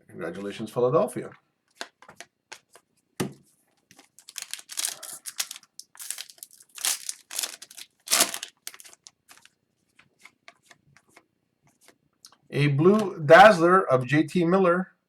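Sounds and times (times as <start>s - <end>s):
foil wrapper crinkling and tearing: 4.0s - 9.5s
cards ticking as handled: 4.0s - 11.3s.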